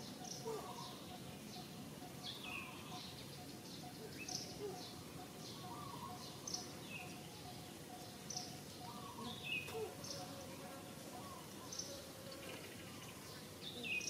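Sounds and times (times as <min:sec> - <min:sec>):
birds chirping faintly: 0:00.0 - 0:14.0.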